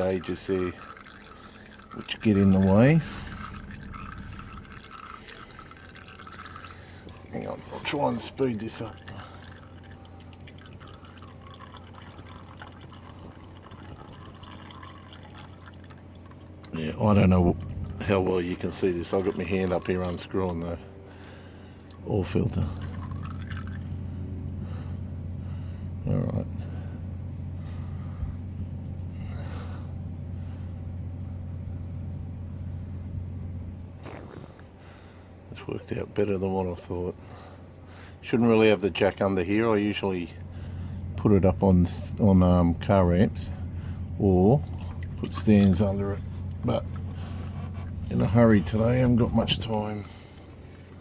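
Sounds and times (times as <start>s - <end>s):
oil dripping into a pan: 0.0s - 7.3s, 7.9s - 16.8s, 17.6s - 24.7s
low hum: 0.0s - 51.0s
man breathing sharply: 21.1s - 21.9s, 24.6s - 26.0s, 26.6s - 28.5s, 29.1s - 30.8s, 34.6s - 35.4s, 37.2s - 38.2s, 40.4s - 41.1s.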